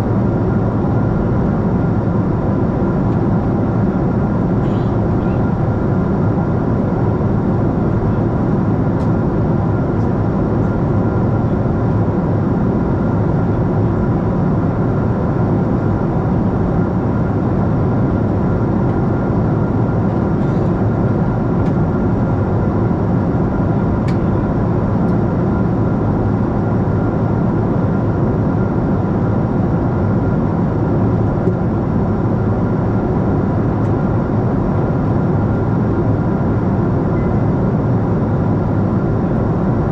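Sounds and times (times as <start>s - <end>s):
jet engine roar inside airliner: 0.0s - 39.9s.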